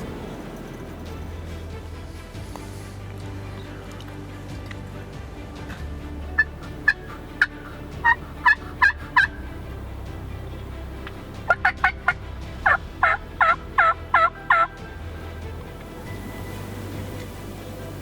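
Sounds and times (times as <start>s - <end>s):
turkey yelping: 13.0s - 14.7s.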